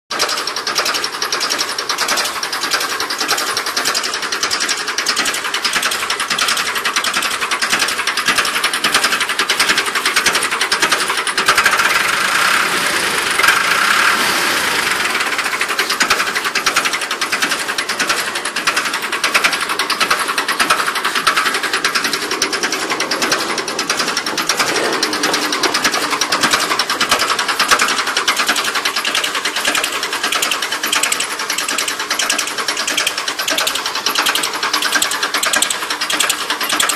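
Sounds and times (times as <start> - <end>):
tractor engine idling: 0.1 - 36.9.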